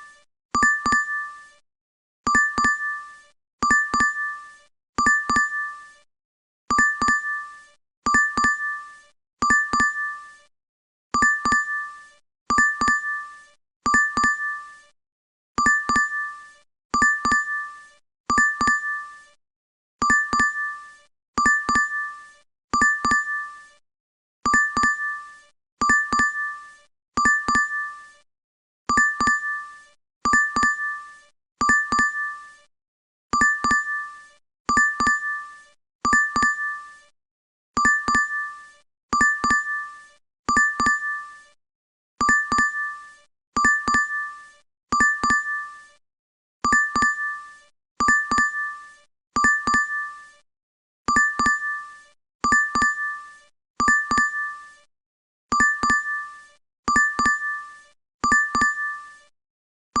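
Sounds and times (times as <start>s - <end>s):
two-tone notification chime: 0.6s - 1.2s, 33.4s - 34.0s, 55.6s - 56.2s, 56.9s - 57.6s.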